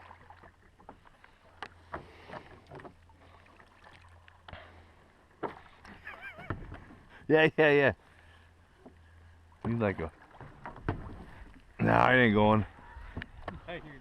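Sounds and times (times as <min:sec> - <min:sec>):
paddle knocking kayak hull: 0:05.4 - 0:07.1, 0:08.8 - 0:12.0.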